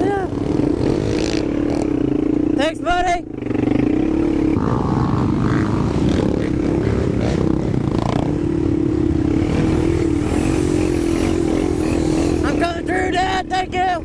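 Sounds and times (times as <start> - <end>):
quad engine running: 0.0 - 14.0.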